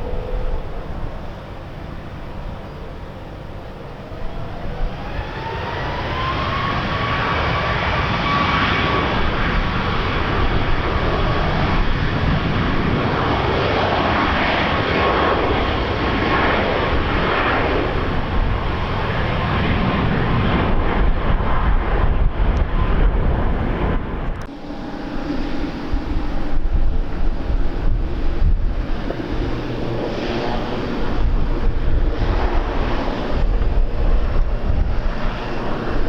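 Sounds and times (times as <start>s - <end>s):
jet engines passing close: 0.0s - 36.0s
wind buffeting microphone: 0.0s - 36.0s.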